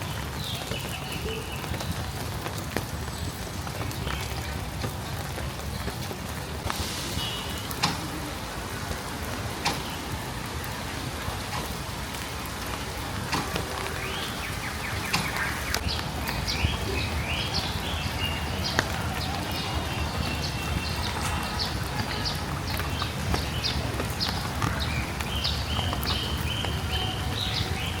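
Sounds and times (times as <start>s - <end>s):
steady rain falling: 0.0s - 28.0s
water drips: 0.0s - 28.0s
bird chirping: 13.9s - 28.0s.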